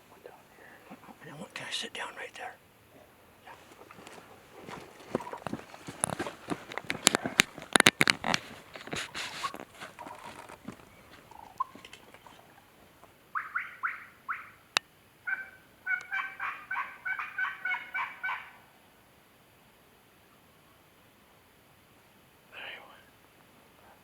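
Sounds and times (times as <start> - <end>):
rustling: 2.9 - 13.1
footsteps: 3.5 - 12.4
turkey call yelping: 3.9 - 5.6, 8.4 - 18.8.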